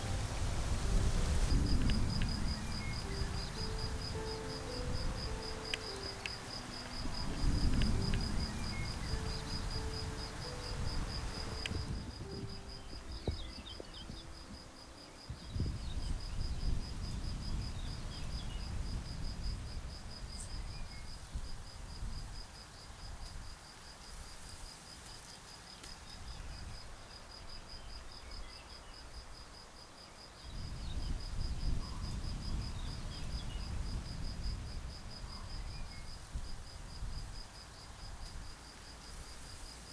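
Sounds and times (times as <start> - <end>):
cricket trilling: 0.0 - 23.0, 30.0 - 39.9
faint bird chirps: 12.2 - 16.6.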